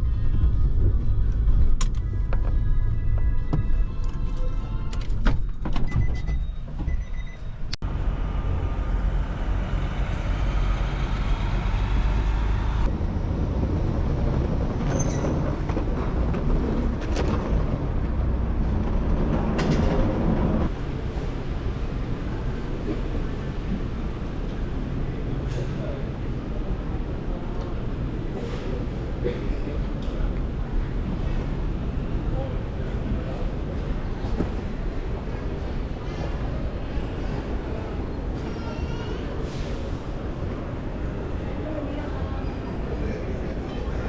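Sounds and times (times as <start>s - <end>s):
vehicle interior rumble: 0.0s - 20.8s.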